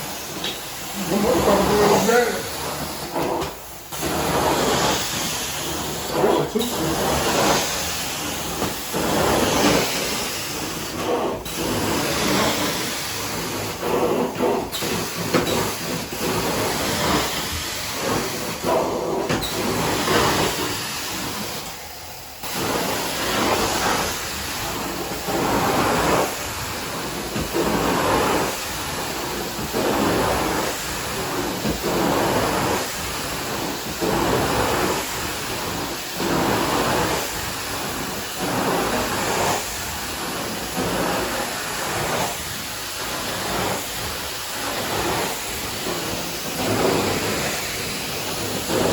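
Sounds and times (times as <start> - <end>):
carpet cleaner suction hiss: 0.0 - 48.9.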